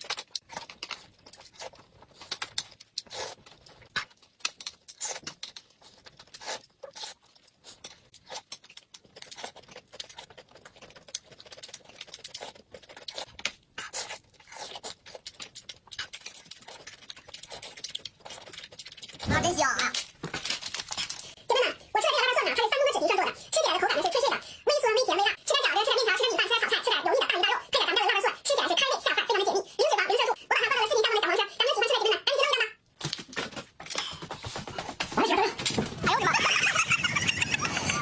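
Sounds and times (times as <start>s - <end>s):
person chewing with mouth smacks: 0.0s - 19.2s.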